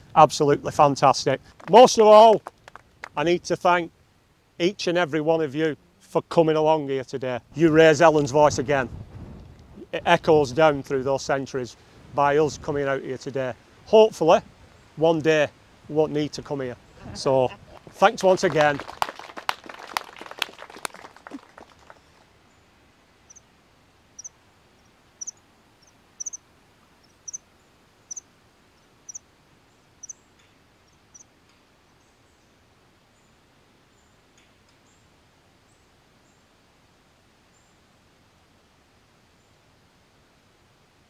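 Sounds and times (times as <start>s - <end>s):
faint background hiss: 0.0s - 41.0s
applause: 1.6s - 3.2s, 17.8s - 22.3s
bird chirping: 24.2s - 26.4s, 27.0s - 27.4s, 28.0s - 31.3s.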